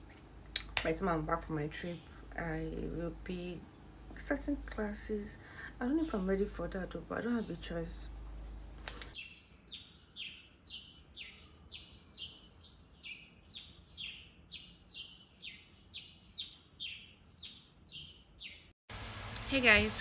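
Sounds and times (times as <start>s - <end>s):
bird chirping: 6.4s - 18.8s.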